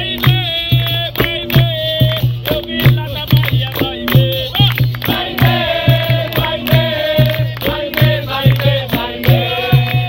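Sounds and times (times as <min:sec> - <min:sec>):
hand percussion: 0:00.0 - 0:10.0
voices singing together: 0:00.0 - 0:10.0.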